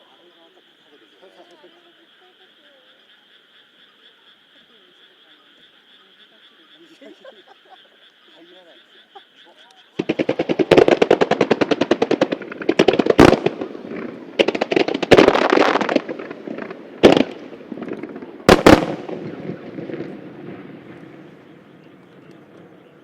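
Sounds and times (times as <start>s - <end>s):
big fireworks bangs: 10.0s - 23.0s
fireworks bursts rattling: 10.0s - 23.0s
rumbling echo: 10.0s - 23.0s.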